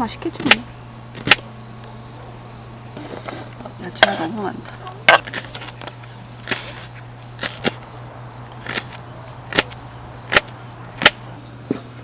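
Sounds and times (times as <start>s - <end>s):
knife chopping vegetables: 1.2s - 1.5s, 4.0s - 7.9s, 8.6s - 11.2s.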